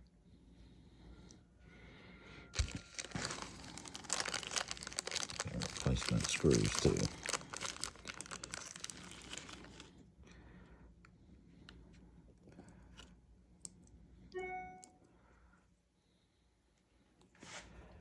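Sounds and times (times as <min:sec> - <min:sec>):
plastic package crinkling: 0:02.6 - 0:09.9
brief pitched tone: 0:14.4 - 0:15.0.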